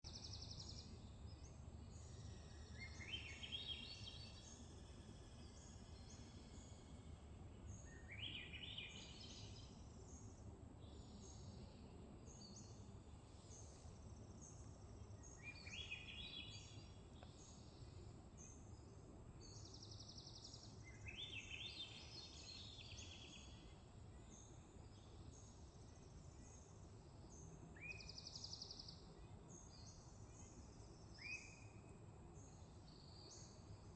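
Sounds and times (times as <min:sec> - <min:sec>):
faint thrush singing: 0:00.0 - 0:33.9.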